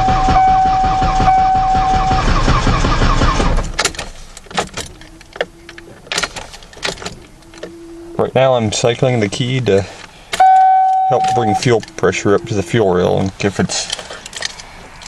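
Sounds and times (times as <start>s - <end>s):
starter cranking engine: 0.0s - 4.0s.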